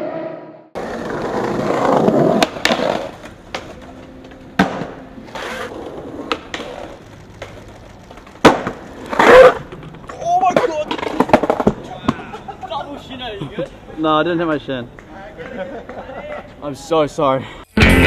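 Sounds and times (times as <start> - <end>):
skateboard wheels rolling: 0.0 - 16.6
skateboard clacking on ground: 0.8 - 12.7.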